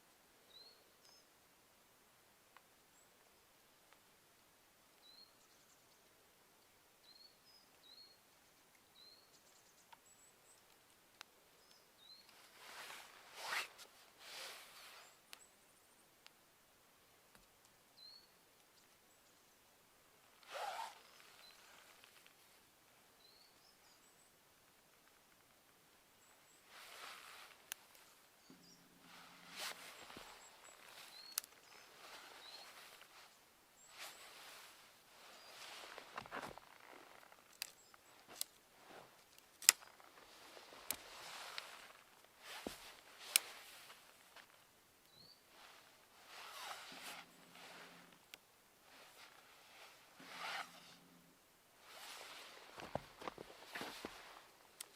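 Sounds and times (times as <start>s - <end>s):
rustle or crunch: 12.1s - 15.2s, 20.4s - 22.5s, 26.5s - 54.9s
sharp cracks or pops: 39.3s - 40.0s.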